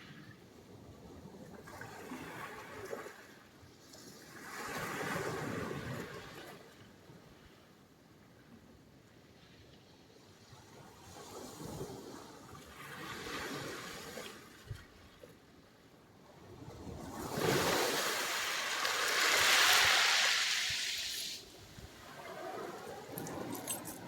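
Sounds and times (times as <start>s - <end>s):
sea waves washing ashore: 16.6s - 24.0s.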